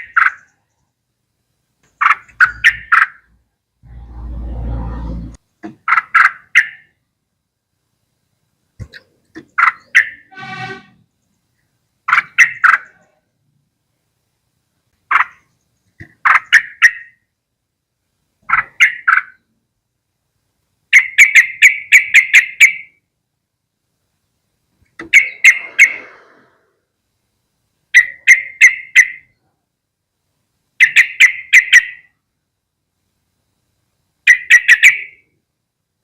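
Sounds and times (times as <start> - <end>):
bird chattering calls: 1.9 - 3.3, 5.8 - 6.9, 8.8 - 10.3, 12.1 - 13.1, 15.1 - 17.2, 18.4 - 19.4, 20.9 - 22.9, 25.0 - 26.5, 28.0 - 29.3, 30.8 - 32.1, 34.3 - 35.2.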